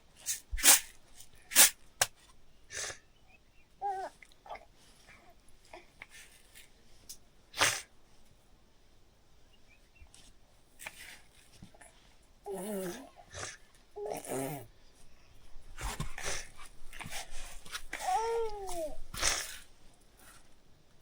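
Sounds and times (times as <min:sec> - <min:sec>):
breathy puffs: 0:15.7 - 0:20.4.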